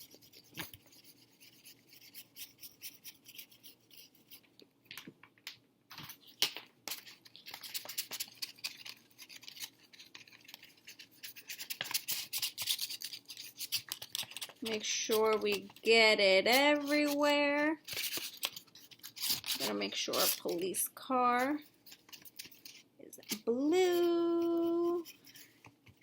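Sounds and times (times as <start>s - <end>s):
paintbrush scratching on paper plate: 0.0s - 4.4s, 10.2s - 22.7s, 23.3s - 25.6s.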